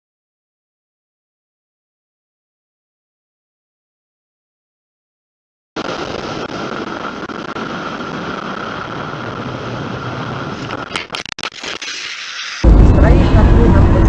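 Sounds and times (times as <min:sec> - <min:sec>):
car road and engine noise: 0:12.6 - 0:14.0.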